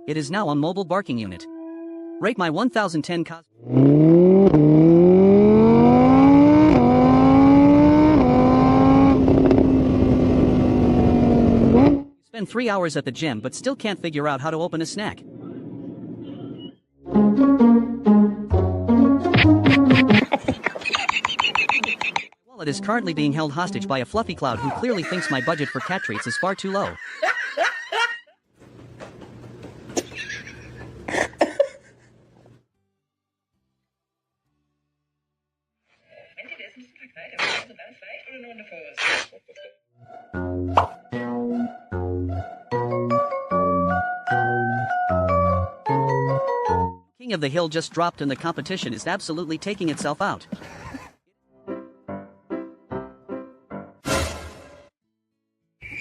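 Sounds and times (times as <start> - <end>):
car engine accelerating: 3.6 - 12.1.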